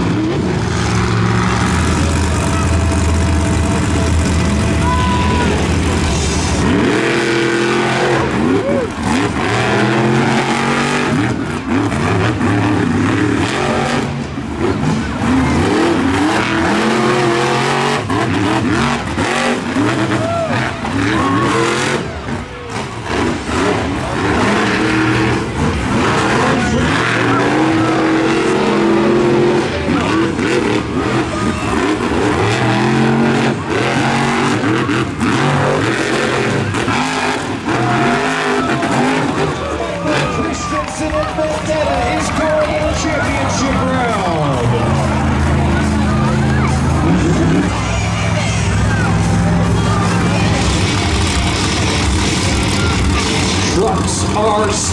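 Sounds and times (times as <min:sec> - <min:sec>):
truck engines revving hard: 0:00.0 - 0:54.9.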